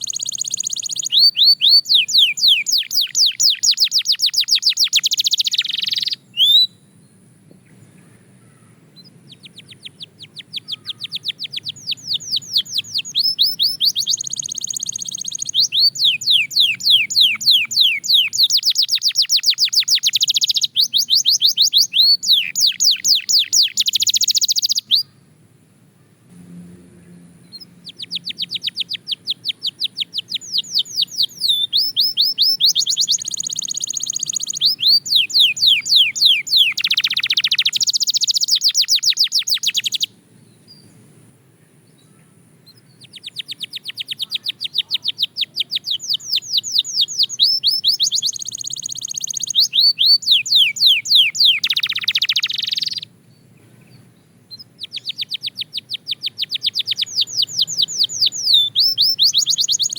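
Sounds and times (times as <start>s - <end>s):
canary singing trills: 0.0s - 25.3s, 27.0s - 41.0s, 41.7s - 59.9s.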